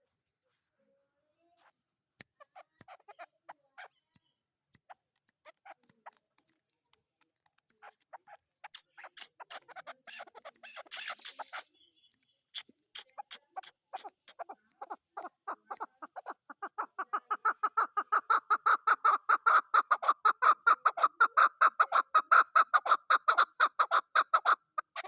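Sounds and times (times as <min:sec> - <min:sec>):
partridge clucking call: 0:07.8 - 0:11.7, 0:12.5 - 0:25.0.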